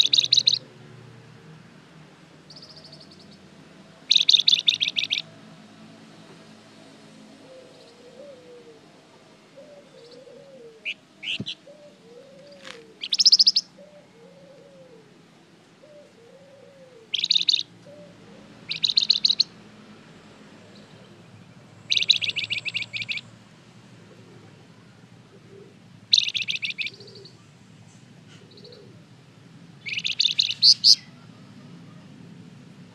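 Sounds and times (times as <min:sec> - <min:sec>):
songbird trilled chirps: 0:00.0 - 0:00.6, 0:04.1 - 0:05.3, 0:10.8 - 0:11.7, 0:12.4 - 0:13.8, 0:17.1 - 0:17.7, 0:18.7 - 0:19.6, 0:21.8 - 0:23.3, 0:26.1 - 0:27.4, 0:29.8 - 0:31.2.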